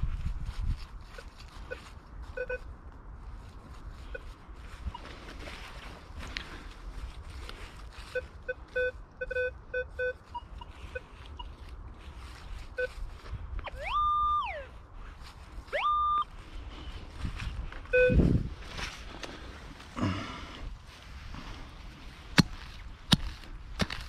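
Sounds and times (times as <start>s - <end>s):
metal detector beeps: 1.2s - 2.7s, 8.1s - 11.6s, 12.7s - 13.0s, 13.6s - 14.7s, 15.7s - 16.3s, 17.9s - 18.4s.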